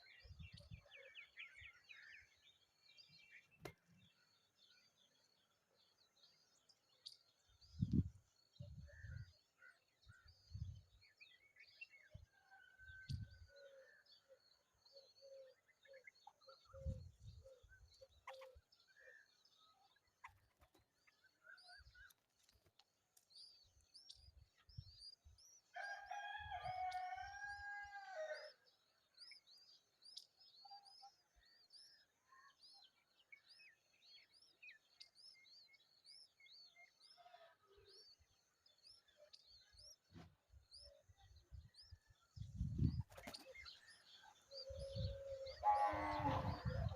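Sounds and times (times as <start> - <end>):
birds chirping: 32.9 - 46.9
long drawn-out bird call: 45.1 - 46.9.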